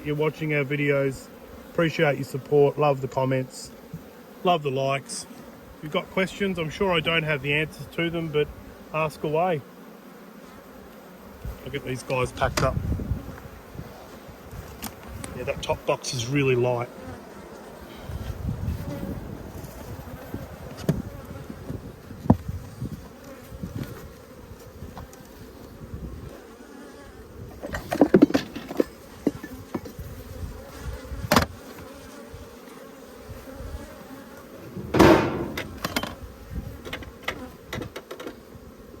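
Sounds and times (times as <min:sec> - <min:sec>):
honeybees buzzing: 0:00.0 - 0:39.0
wooden hive boxes knocking: 0:34.7 - 0:36.2.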